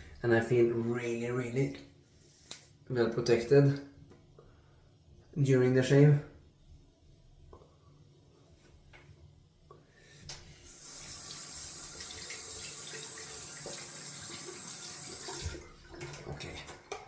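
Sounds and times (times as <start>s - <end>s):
tap water running into sink: 10.7s - 17.0s.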